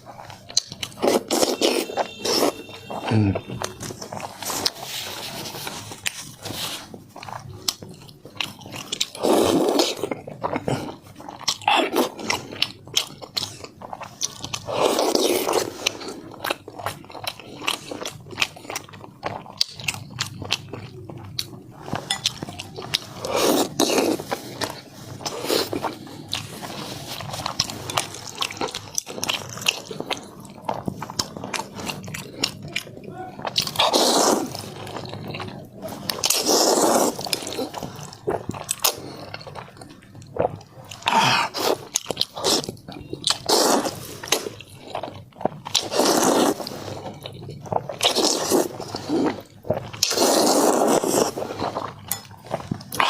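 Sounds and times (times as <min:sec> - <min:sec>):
wet chewing and mouth clicks: 0:00.0 - 0:53.0
noodle slurping: 0:33.4 - 0:35.1, 0:35.7 - 0:39.3, 0:40.9 - 0:44.6, 0:45.7 - 0:53.0.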